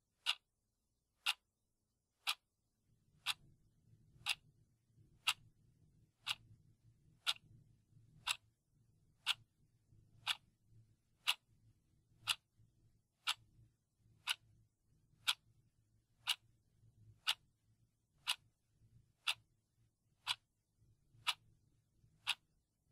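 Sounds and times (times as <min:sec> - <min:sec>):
timer clock ticking: 0:00.2 - 0:00.4, 0:01.2 - 0:01.4, 0:02.2 - 0:02.4, 0:03.2 - 0:03.5, 0:04.2 - 0:04.5, 0:05.2 - 0:05.5, 0:06.2 - 0:06.6, 0:07.2 - 0:07.5, 0:08.2 - 0:08.5, 0:09.2 - 0:09.5, 0:10.2 - 0:10.5, 0:11.2 - 0:11.5, 0:12.2 - 0:12.5, 0:13.2 - 0:13.6, 0:14.2 - 0:15.5, 0:16.2 - 0:16.6, 0:17.2 - 0:17.6, 0:18.2 - 0:18.6, 0:19.2 - 0:19.5, 0:20.2 - 0:20.5, 0:21.1 - 0:22.5.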